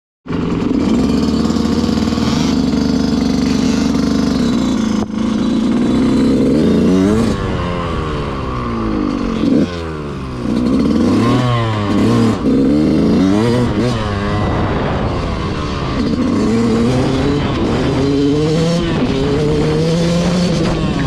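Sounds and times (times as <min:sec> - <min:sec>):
motorcycle engine revving: 0:00.3 - 0:21.0.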